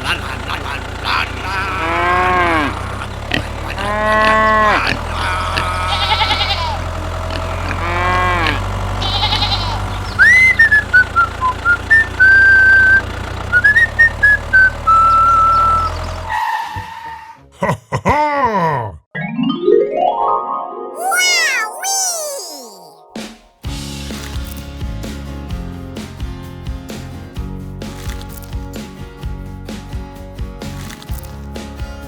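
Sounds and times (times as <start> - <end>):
low engine-like hum: 0.0 - 16.3
sheep bleating: 1.6 - 10.2
high whistled tune: 10.2 - 16.0.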